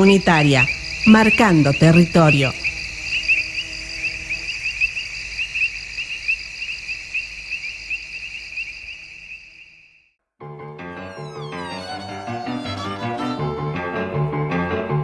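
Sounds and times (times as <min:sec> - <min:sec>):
crickets chirping: 0:00.0 - 0:10.1
music: 0:10.4 - 0:15.0.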